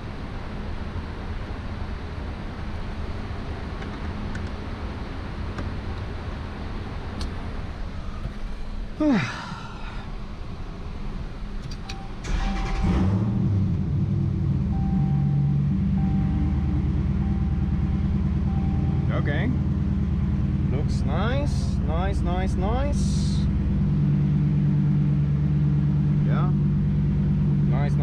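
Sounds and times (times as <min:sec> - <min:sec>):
car engine idling: 0:00.0 - 0:28.0
car engine cranking and starting: 0:11.4 - 0:20.8
repeating warning chime: 0:14.7 - 0:17.8.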